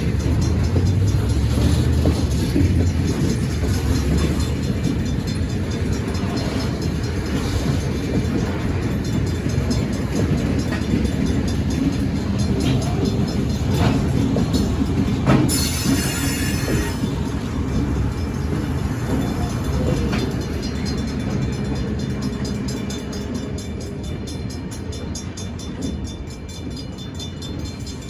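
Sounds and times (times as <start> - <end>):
freight train rumbling past: 0.0 - 28.0
train wheel clicks: 0.0 - 28.0.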